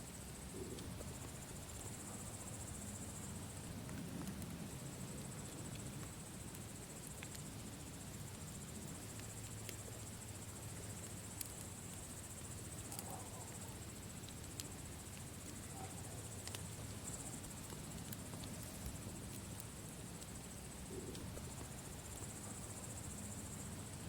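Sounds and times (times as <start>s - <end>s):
campfire crackling pops: 3.6s - 7.6s, 8.2s - 22.8s.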